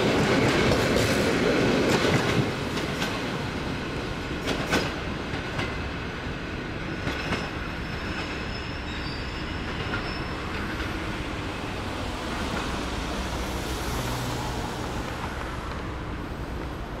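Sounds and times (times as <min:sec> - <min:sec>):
train wheels rumbling on rails: 0:00.0 - 0:17.0
wheel squeal: 0:07.8 - 0:10.7.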